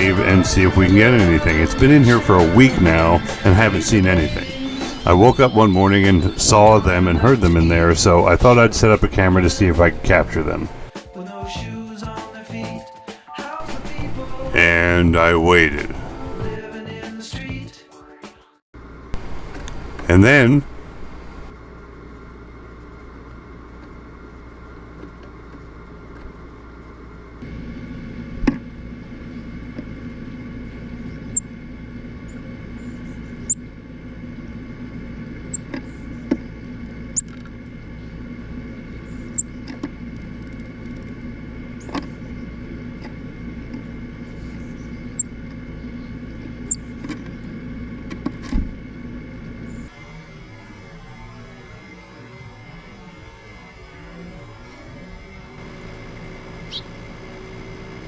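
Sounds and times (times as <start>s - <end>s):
low room hum: 0.0s - 10.9s, 13.6s - 16.6s, 19.2s - 21.5s
birds tapping on plastic feeder: 19.2s - 21.5s.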